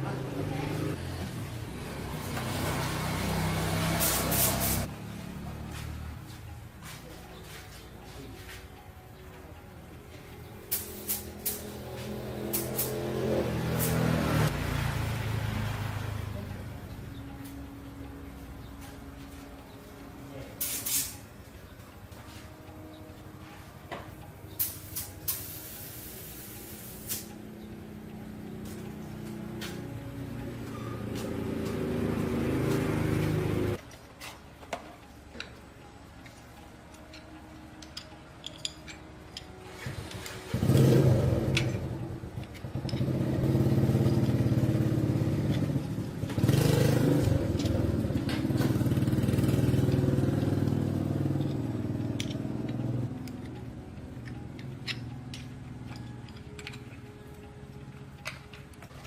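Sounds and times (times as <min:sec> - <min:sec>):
small motorcycle engine revving: 0:00.0 - 0:04.9, 0:11.7 - 0:16.3, 0:31.0 - 0:33.8, 0:39.8 - 0:53.2.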